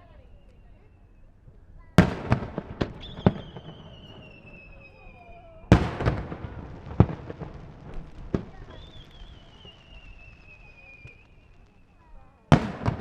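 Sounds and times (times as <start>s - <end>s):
fireworks shells bursting: 0.0s - 13.0s
high falling whistle: 2.9s - 5.7s, 8.6s - 12.1s.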